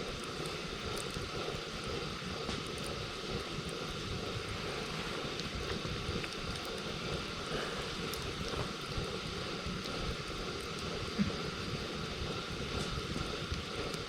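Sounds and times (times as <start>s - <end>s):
campfire crackling: 0.0s - 14.0s
fire low rumble: 0.0s - 14.0s.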